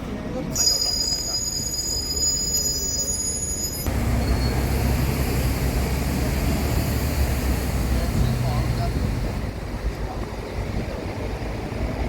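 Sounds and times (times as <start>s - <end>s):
vehicle running noise: 3.8s - 12.0s.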